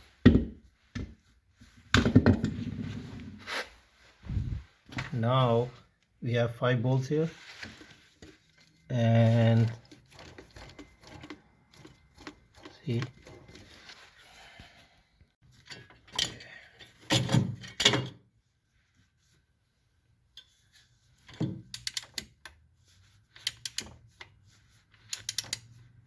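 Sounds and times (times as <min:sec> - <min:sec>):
ratchet clicking: 0:23.4 - 0:23.9, 0:25.1 - 0:25.7
tools clanking on metal: 0:25.1 - 0:25.7.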